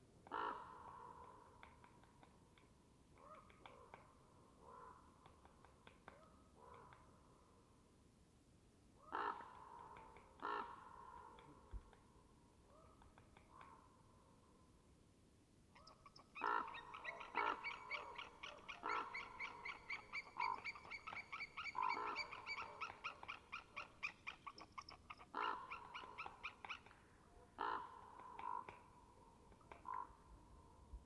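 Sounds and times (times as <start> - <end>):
bird calling rapid repeated notes: 15.8 - 26.9
harsh bird calls: 15.8 - 27.0.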